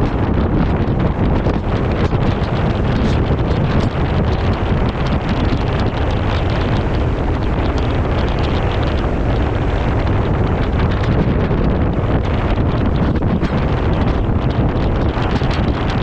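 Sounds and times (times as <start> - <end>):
gale wind on microphone: 0.0 - 16.0.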